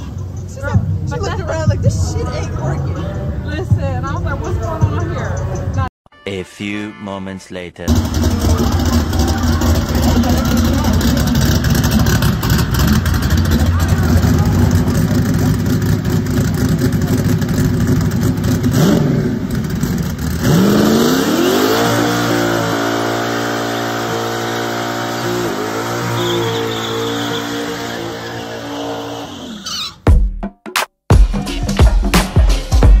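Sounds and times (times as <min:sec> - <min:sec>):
car engine revving: 0:07.9 - 0:29.7.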